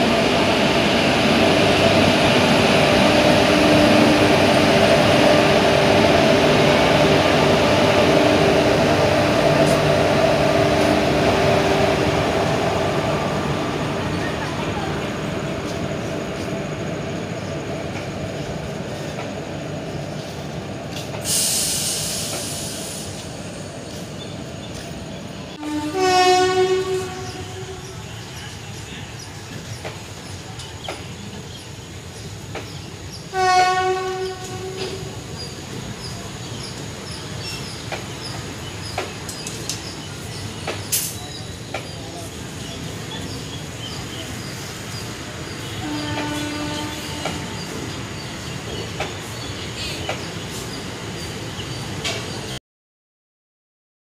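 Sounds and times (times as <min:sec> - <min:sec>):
train coaches rumbling: 0:00.0 - 0:52.6
high hiss: 0:21.0 - 0:24.2
locomotive horn blasts: 0:25.6 - 0:27.9, 0:33.3 - 0:35.0, 0:45.8 - 0:47.6.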